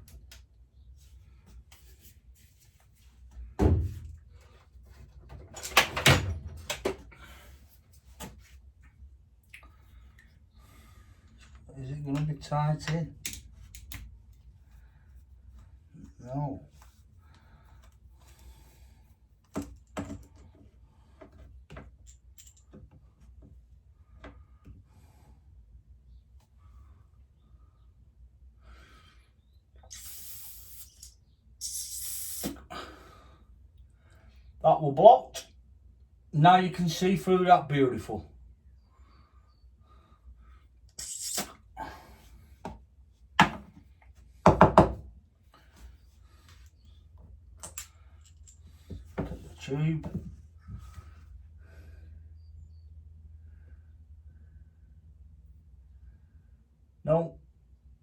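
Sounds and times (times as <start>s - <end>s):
light clicks and taps of tools: 11.3s - 14.5s, 19.4s - 23.5s, 46.6s - 49.0s
short hiss: 29.9s - 32.6s, 41.0s - 41.6s.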